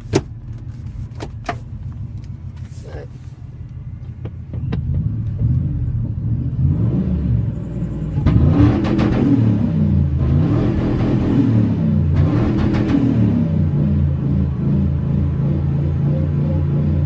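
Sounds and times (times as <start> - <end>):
truck engine revving: 4.6 - 17.0.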